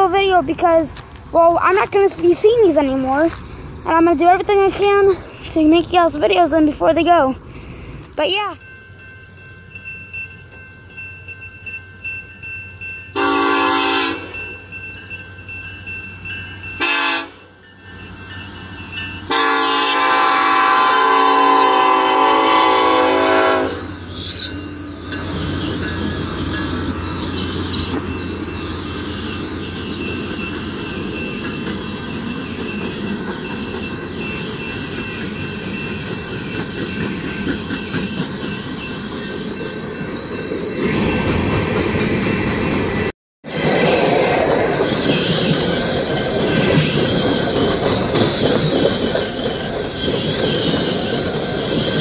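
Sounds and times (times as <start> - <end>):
freight train rumbling past: 0.0 - 52.0
locomotive horn blasts: 13.2 - 14.4, 16.8 - 17.5, 19.3 - 24.0.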